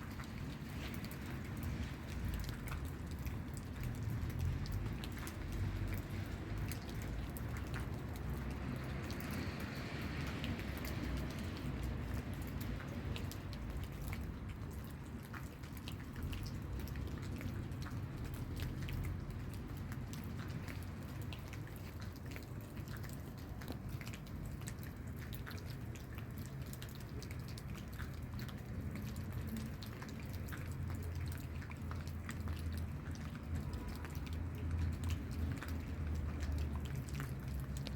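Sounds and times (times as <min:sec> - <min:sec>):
low rain rumble: 0:00.0 - 0:37.9
rain drops ticking: 0:00.0 - 0:37.9.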